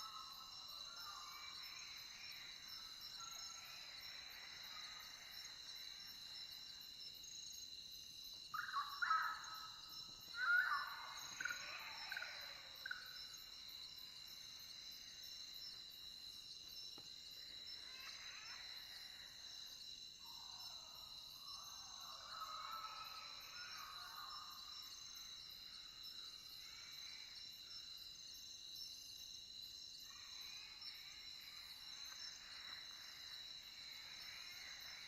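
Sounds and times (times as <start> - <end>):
crickets trilling: 0.0 - 35.0.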